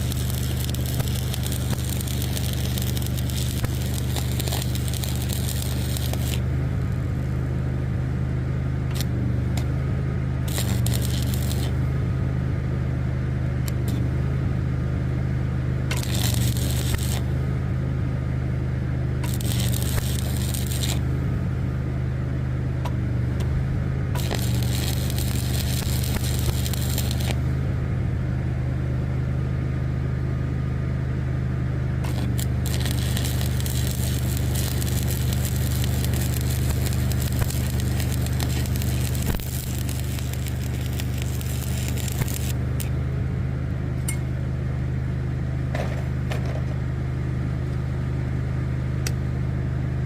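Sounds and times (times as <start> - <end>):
bursts of crackling hiss: 0.0 - 6.5, 10.5 - 11.8, 15.9 - 17.3, 19.2 - 21.0, 24.2 - 27.4, 32.1 - 42.9
engine running steadily: 0.0 - 50.0.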